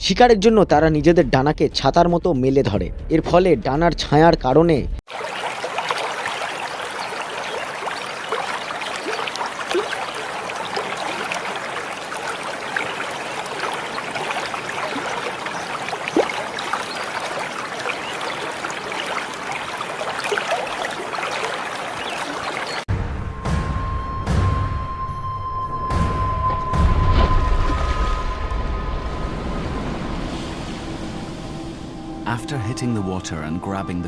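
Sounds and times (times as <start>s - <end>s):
shallow water trickling: 5.1s - 22.9s.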